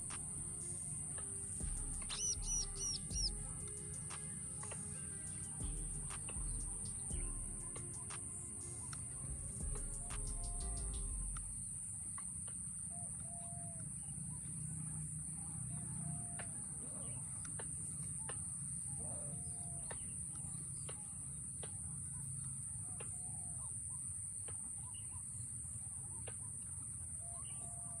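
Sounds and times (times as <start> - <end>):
birds calling: 0.0 - 11.7
high-pitched buzz: 0.0 - 11.8
low rumble: 1.6 - 3.7, 5.6 - 7.9, 9.2 - 11.7.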